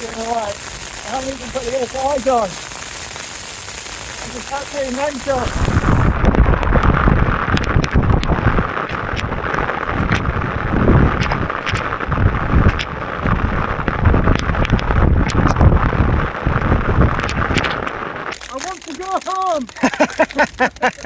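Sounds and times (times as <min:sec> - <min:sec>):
hail and rain on tent fabric: 0:00.0 - 0:21.0
wind gusts buffeting tent: 0:03.8 - 0:18.8.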